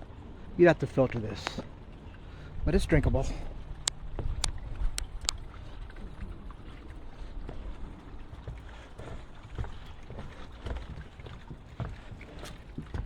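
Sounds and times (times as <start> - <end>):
wind rumble on microphone: 2.5 - 13.0.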